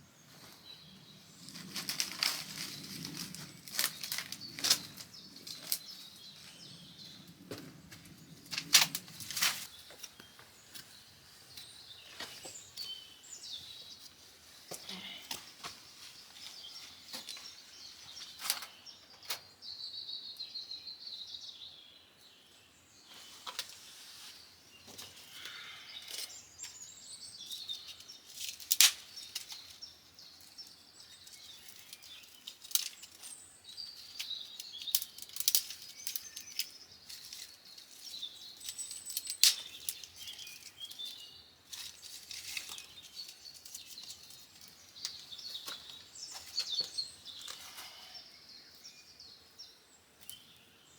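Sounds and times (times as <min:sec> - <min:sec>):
songbirds chirping: 0:00.0 - 0:50.9.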